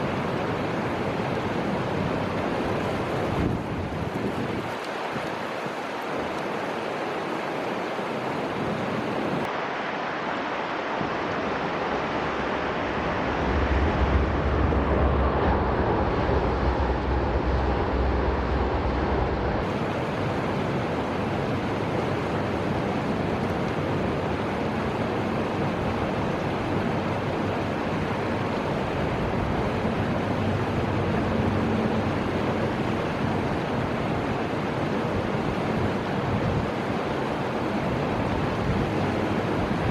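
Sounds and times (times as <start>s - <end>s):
river water rushing: 0.0s - 39.9s
wind: 0.0s - 39.9s
deep rumble: 12.7s - 19.7s.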